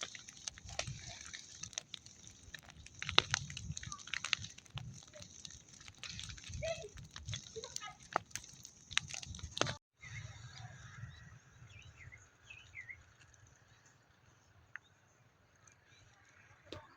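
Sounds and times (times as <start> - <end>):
burning stalks crackling and popping: 0.0 - 16.9
bird chirps: 10.0 - 13.9.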